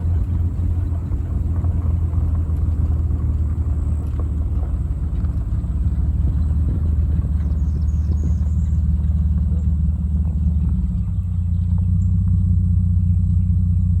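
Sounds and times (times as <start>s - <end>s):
car engine rumble while driving: 0.0s - 14.0s.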